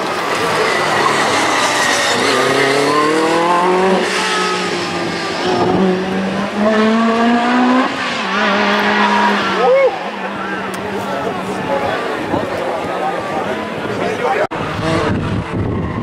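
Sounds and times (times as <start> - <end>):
car engine accelerating through gears: 0.0 - 9.7, 14.5 - 16.0.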